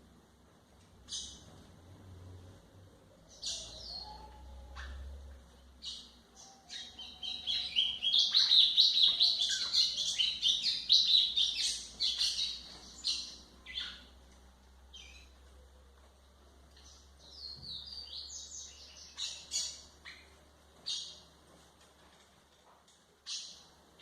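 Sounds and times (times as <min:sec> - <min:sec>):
bird fast twittering song: 0:05.8 - 0:14.1.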